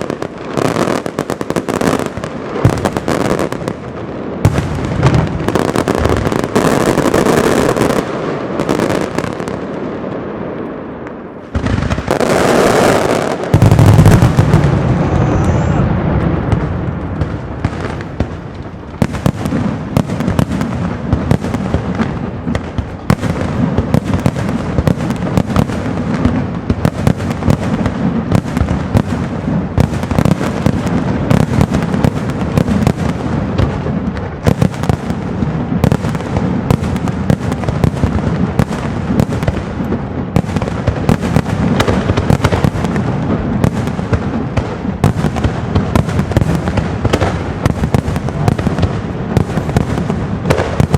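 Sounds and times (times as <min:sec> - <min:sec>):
rapid firework crackle: 0:00.0 - 0:50.9
aerial firework shells bursting: 0:10.9 - 0:50.9
loud low boom: 0:13.8 - 0:17.3.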